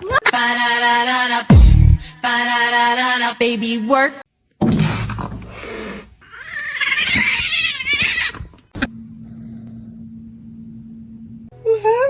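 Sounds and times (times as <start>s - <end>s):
cat yowling: 6.2s - 8.6s
steady low hum: 8.8s - 11.5s.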